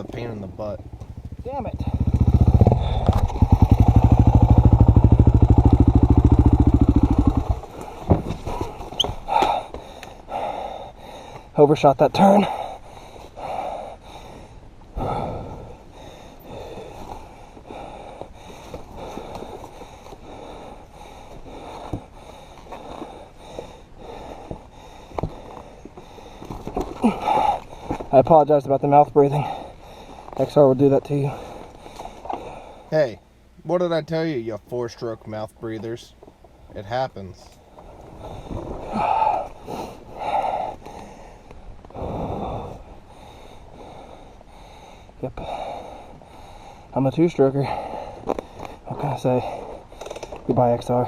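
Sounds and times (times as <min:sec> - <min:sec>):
dirt bike engine under throttle: 0:00.0 - 0:08.3
person panting heavily: 0:02.6 - 0:04.5, 0:09.2 - 0:11.6, 0:12.3 - 0:28.1, 0:29.3 - 0:30.3, 0:31.2 - 0:32.9, 0:38.2 - 0:46.9, 0:47.6 - 0:50.2.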